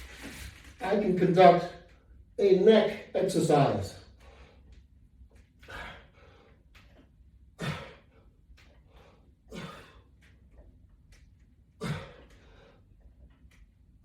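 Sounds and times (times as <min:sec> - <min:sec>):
man exhaling forcefully: 0:05.6 - 0:06.4, 0:07.6 - 0:08.2, 0:09.5 - 0:10.0, 0:11.8 - 0:12.5.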